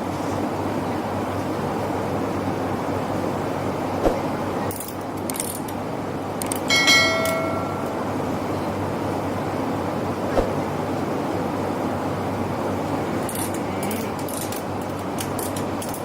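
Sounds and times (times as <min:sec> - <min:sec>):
high ringing tones: 0:06.7 - 0:08.8.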